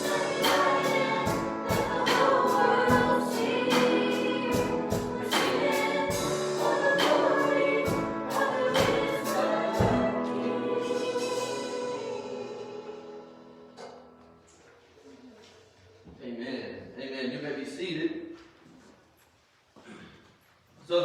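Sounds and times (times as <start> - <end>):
instrumental accompaniment with beat: 0.0 - 12.2
group singing a worship song: 0.0 - 14.0.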